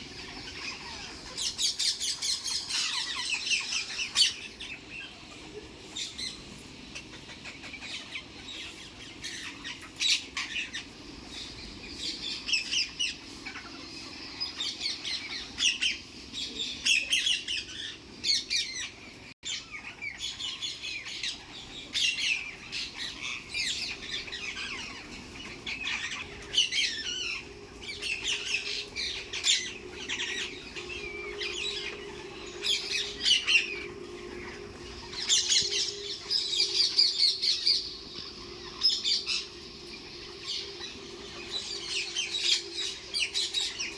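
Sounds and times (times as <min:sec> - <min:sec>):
parrots chirping and squawking: 0:00.0 - 0:16.0, 0:16.8 - 0:43.9.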